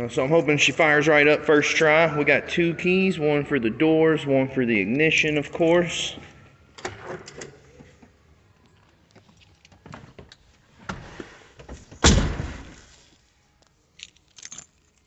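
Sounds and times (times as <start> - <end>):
car door slammed shut: 12.0 - 12.8.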